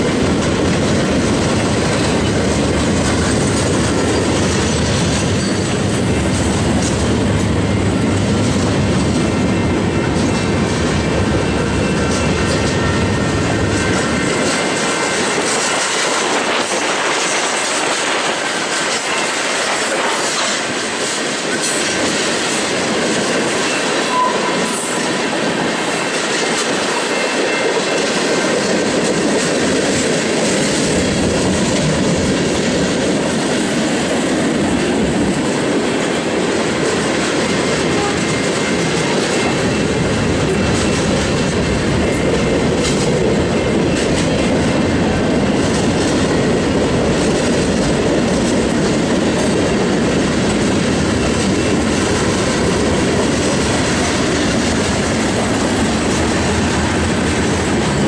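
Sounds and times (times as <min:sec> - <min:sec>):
freight train wheels rushing on rail: 0:00.0 - 0:58.0.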